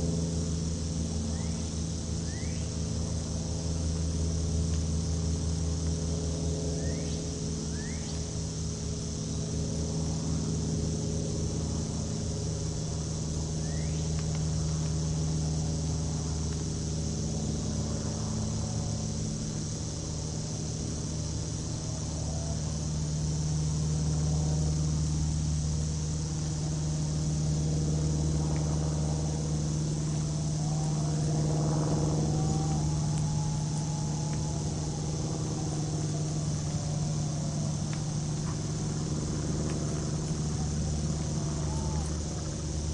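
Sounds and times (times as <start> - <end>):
crickets chirring: 0.0 - 42.9
steady low hum: 0.0 - 42.9
faint bird chirps: 1.3 - 2.7, 6.8 - 8.2, 13.6 - 14.0.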